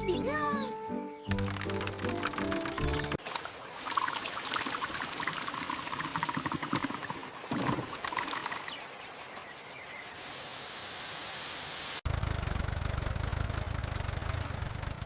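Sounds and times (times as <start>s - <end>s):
water pouring and trickling: 2.1s - 9.4s
hiss: 10.2s - 12.0s
small engine droning: 12.1s - 15.0s.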